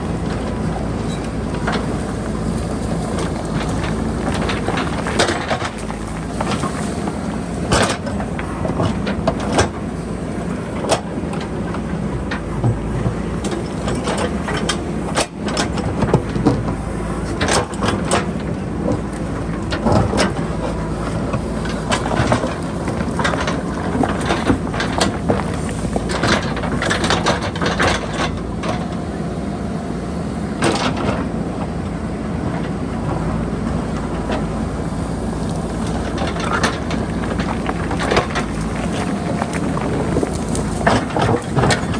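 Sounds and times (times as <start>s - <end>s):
diesel engine running: 0.0s - 41.9s
bucket clanking against rock: 12.3s - 29.0s, 33.8s - 41.9s.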